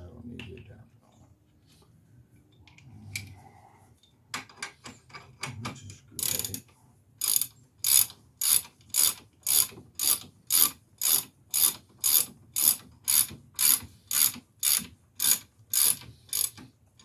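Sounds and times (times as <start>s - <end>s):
ratchet wrench clicking: 6.2s - 6.6s, 7.2s - 16.6s.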